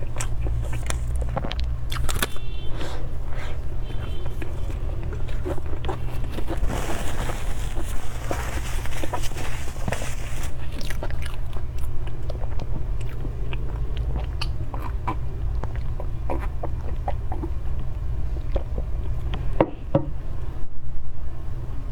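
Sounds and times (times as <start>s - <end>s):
lip smacks and clicks: 0.0s - 2.4s, 10.8s - 19.5s
wet chewing: 0.0s - 19.6s
steady low hum: 0.0s - 21.9s.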